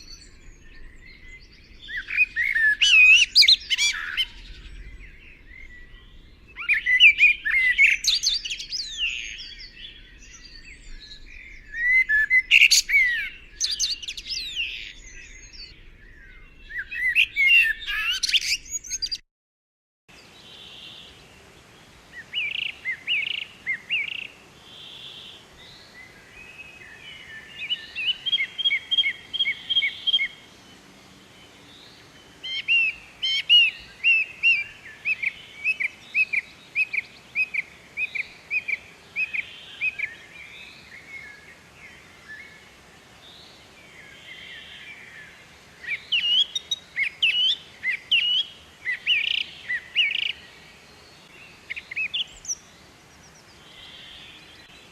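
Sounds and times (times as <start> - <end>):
small bird chirping: 0.0 - 19.2, 26.8 - 30.5.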